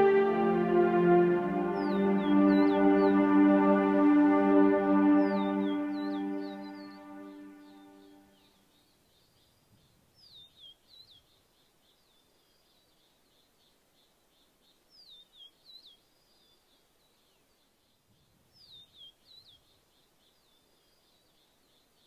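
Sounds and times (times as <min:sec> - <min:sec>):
small high bird chirps: 0:05.3 - 0:22.0.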